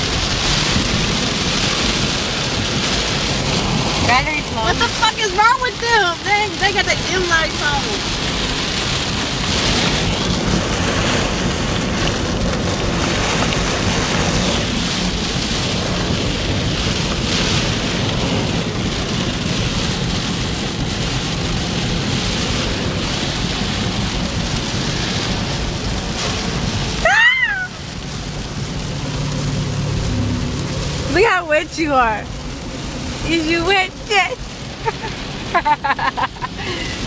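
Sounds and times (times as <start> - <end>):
heavy rain on car: 0.0 - 37.0
short high-pitched cry: 27.0 - 27.8.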